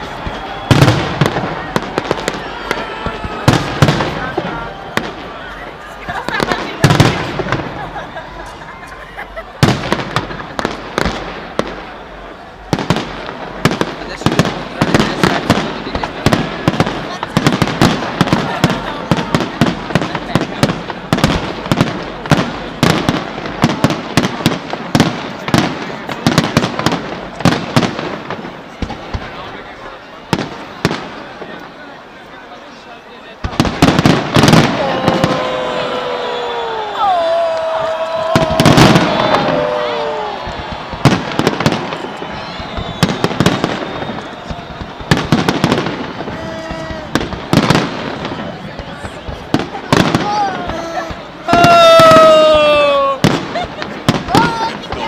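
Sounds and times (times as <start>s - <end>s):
fireworks bangs: 0.0s - 31.8s, 33.4s - 55.0s
fireworks crackling: 0.0s - 55.0s.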